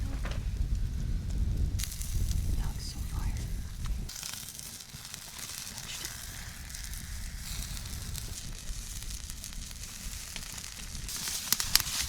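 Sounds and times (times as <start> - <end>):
faint sizzle: 0.0 - 12.0
fire crackling: 0.0 - 12.0.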